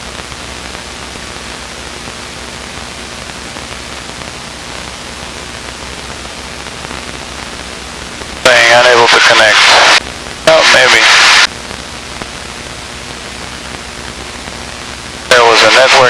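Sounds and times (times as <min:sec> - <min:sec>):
cockpit intercom hiss: 0:08.4 - 0:11.5, 0:15.3 - 0:16.0.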